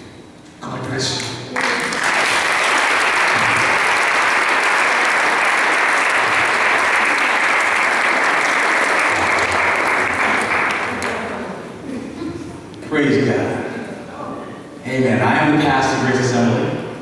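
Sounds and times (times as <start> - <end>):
congregation applauding: 1.5 - 11.7.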